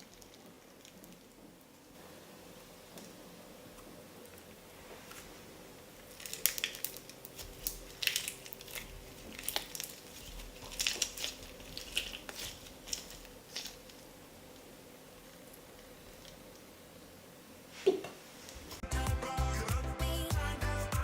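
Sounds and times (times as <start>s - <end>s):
slime squished by hand: 6.0s - 14.1s.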